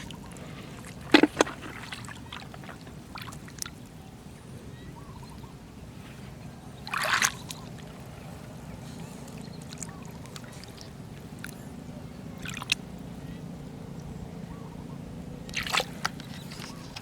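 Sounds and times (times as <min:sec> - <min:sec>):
water splash: 0:00.0 - 0:03.7, 0:15.5 - 0:16.4
shallow water flowing: 0:00.0 - 0:17.0.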